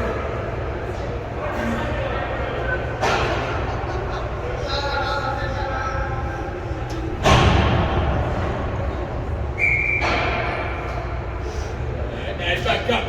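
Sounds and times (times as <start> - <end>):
steady low hum: 0.0 - 13.0
loud echoing thump: 7.2 - 8.8
whistle blast: 9.6 - 10.3.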